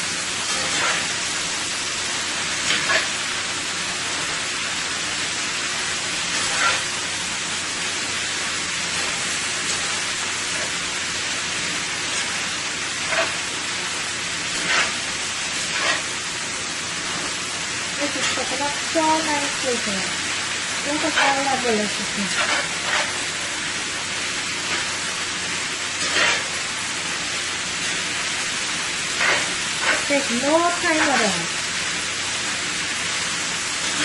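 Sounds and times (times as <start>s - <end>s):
food sizzling in a pan: 0.0s - 34.0s
utensil scraping a pan: 0.5s - 1.1s, 6.4s - 6.9s, 13.0s - 13.4s, 14.5s - 16.2s, 21.0s - 23.3s, 26.0s - 26.6s, 29.1s - 30.1s, 30.9s - 31.4s.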